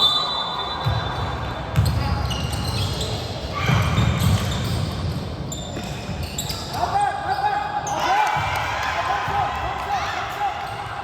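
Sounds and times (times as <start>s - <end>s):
basketball bouncing on court: 0.8s - 6.6s.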